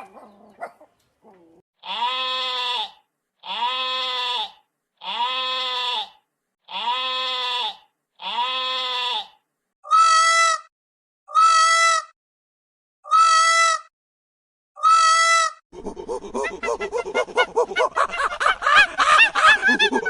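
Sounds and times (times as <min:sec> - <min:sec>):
farm animal bleating: 0:01.8 - 0:10.7, 0:11.3 - 0:12.1, 0:13.1 - 0:13.9, 0:14.8 - 0:15.6.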